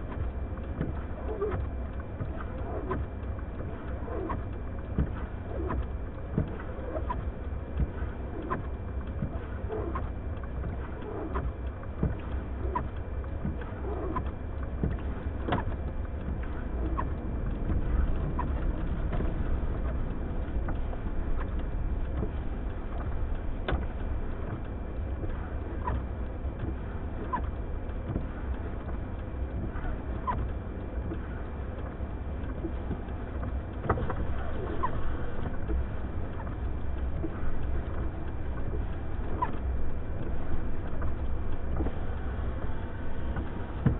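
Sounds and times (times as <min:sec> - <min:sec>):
blizzard wind rumbling: 0:14.4 - 0:43.9.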